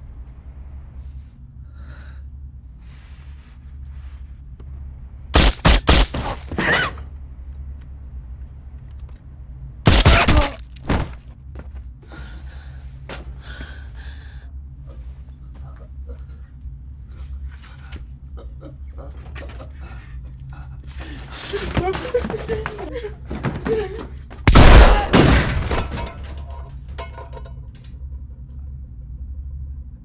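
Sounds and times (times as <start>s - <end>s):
steady low rumble: 0.0s - 19.1s, 26.0s - 30.0s
loud impacts and crashes: 5.4s - 7.0s, 9.9s - 11.2s, 24.4s - 27.5s
something shattering: 5.4s - 7.0s, 9.9s - 11.2s, 24.5s - 27.5s.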